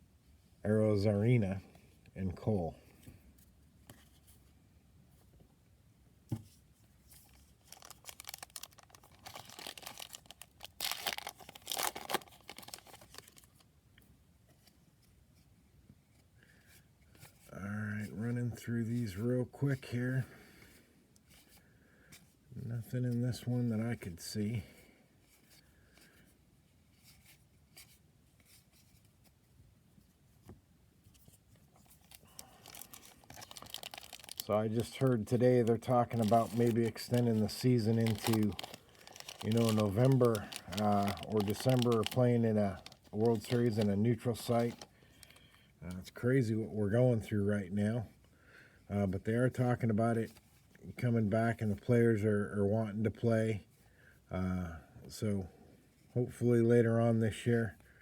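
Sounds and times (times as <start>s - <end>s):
wrapper being torn and crinkled: 7.2s - 13.6s, 31.9s - 45.3s
cards swishing and ticking: 34.8s - 44.8s.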